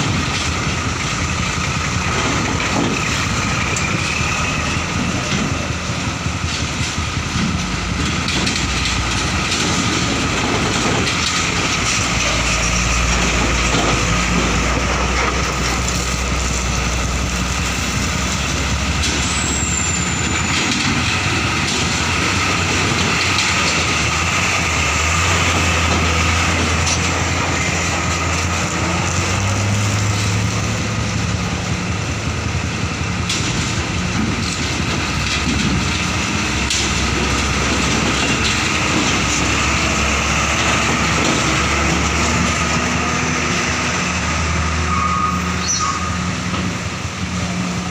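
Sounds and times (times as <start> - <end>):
heavy diesel trucks driving: 0.0 - 47.9
high squeal: 19.1 - 20.7, 44.8 - 46.3.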